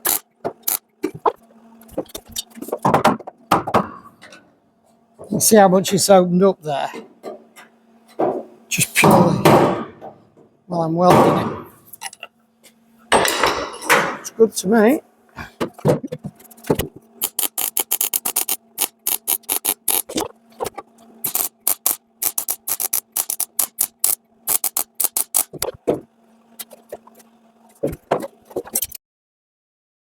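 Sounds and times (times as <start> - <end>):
short welding bursts: 0.0 - 0.8, 17.2 - 20.3, 21.2 - 25.8
steady welder hum: 0.0 - 2.6, 16.0 - 29.0.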